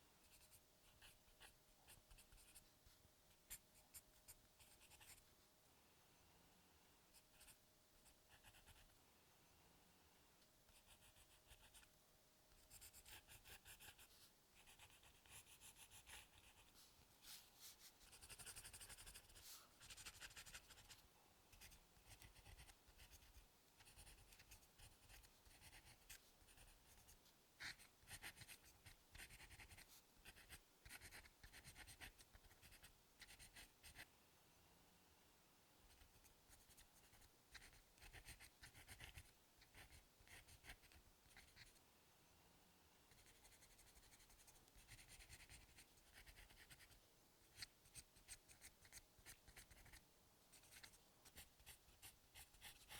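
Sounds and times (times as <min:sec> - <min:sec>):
pencil scratching on paper: 0:12.6 - 0:21.0, 0:21.6 - 0:34.0, 0:35.9 - 0:41.7, 0:43.1 - 0:52.9.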